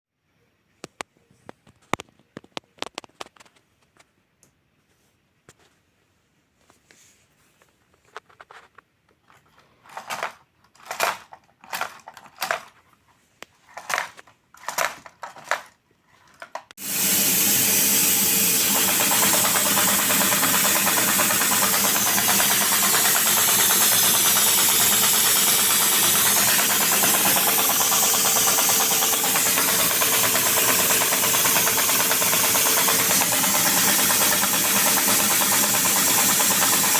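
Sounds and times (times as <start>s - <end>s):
steady hum: 16.8s - 36.9s
swishing engine strokes: 16.8s - 36.9s.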